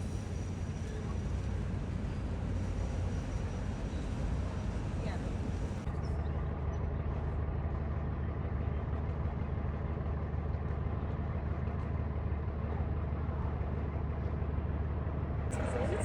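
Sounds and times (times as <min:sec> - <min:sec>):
vehicle engine low rumble: 0:00.0 - 0:16.0.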